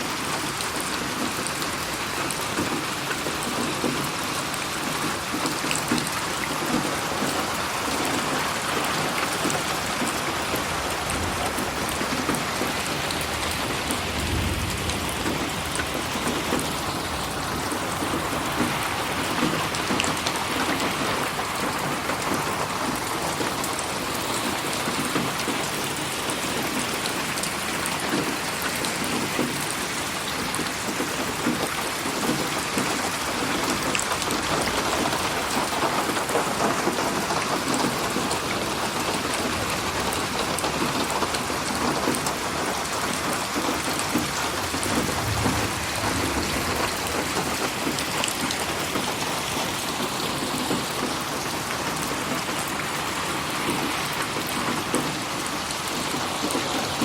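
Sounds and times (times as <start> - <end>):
rain pattering: 0.0 - 57.0
low thunder rumble: 10.6 - 19.6, 44.0 - 49.2.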